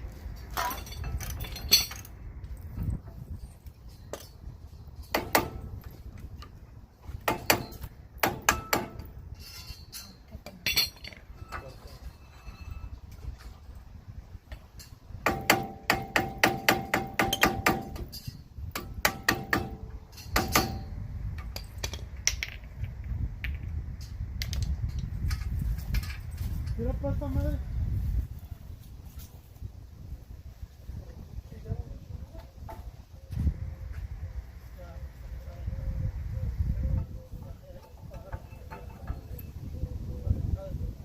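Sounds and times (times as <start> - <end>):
hand tools knocking on metal: 5.1 - 5.9, 7.2 - 9.1, 15.2 - 20.9, 37.8 - 39.5
metal tools clicking and tapping: 7.2 - 12.2, 14.5 - 26.8, 37.8 - 39.6.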